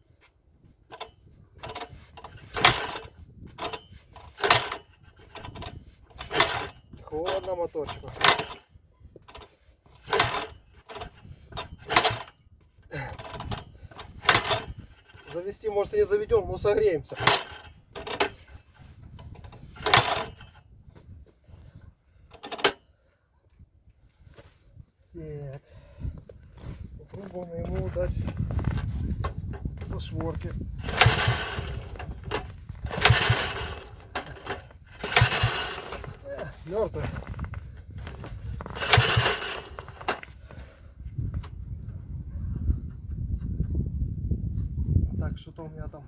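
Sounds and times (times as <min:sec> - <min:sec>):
engine cranking without starting: 0:00.9 - 0:20.7, 0:22.2 - 0:22.8, 0:28.6 - 0:40.8.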